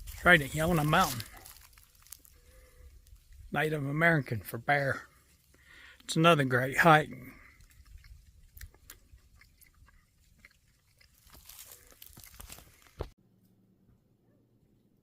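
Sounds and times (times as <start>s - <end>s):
footsteps on rocky trail: 0.0s - 2.7s, 11.0s - 13.2s.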